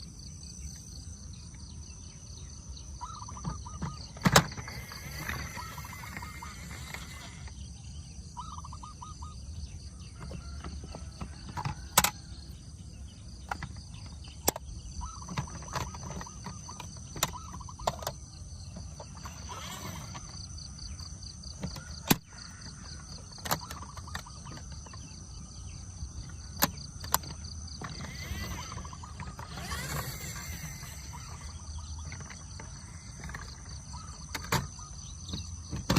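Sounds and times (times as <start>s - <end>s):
sharp clicks and knocks: 10.2s - 12.4s, 21.0s - 25.1s, 26.2s - 35.9s.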